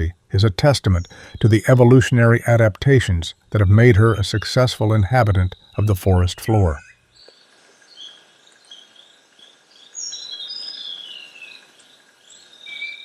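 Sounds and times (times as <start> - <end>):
faint insect drone: 2.1 - 13.0
whistled bird calls: 12.6 - 13.0.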